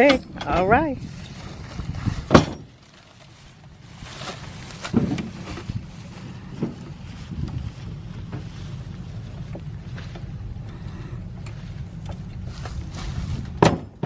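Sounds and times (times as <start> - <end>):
low steady rumble: 0.0 - 14.0
sharp knocks and clunks: 13.6 - 14.0.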